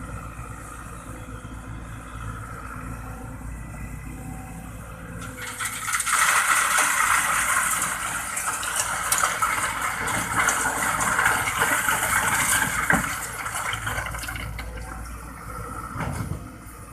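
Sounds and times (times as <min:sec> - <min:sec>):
faint low engine hum: 0:00.0 - 0:16.9
sand pouring into truck bed: 0:05.4 - 0:14.4.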